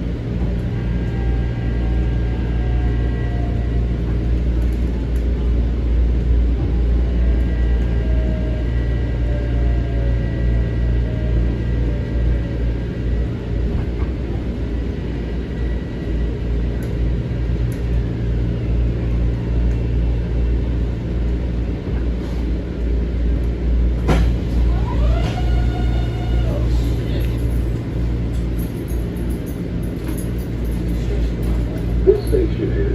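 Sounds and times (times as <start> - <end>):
railcar low rumble: 0.0 - 32.9.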